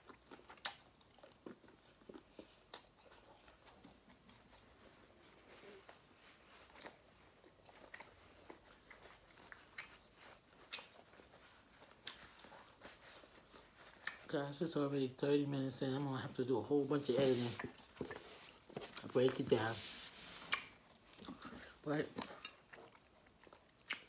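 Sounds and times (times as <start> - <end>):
faint chewing: 0.0 - 24.0
mouth clicks and smacks: 20.5 - 21.5.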